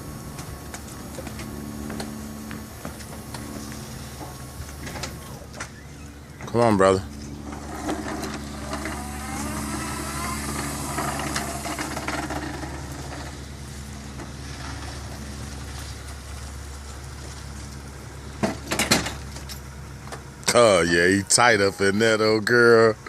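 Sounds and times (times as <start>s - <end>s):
electric motor whirring: 0.0s - 14.2s
wavering whine: 0.0s - 23.0s.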